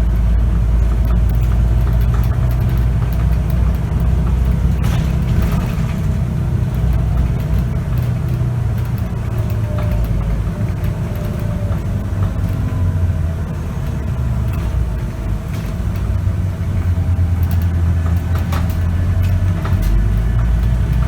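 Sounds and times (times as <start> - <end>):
bus diesel engine running: 0.0 - 21.0
interior rattles: 0.0 - 21.0.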